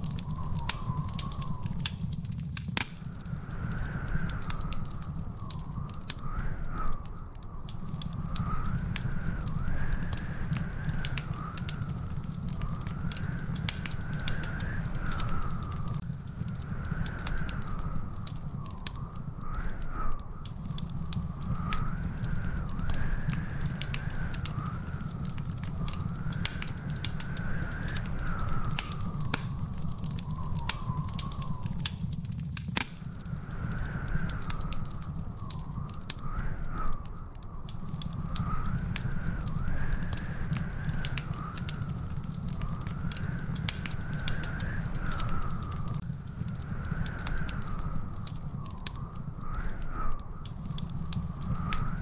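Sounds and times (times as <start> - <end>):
faint wavering whistle: 0.0 - 2.2, 16.6 - 32.2
wood fire crackling and popping: 0.0 - 52.0.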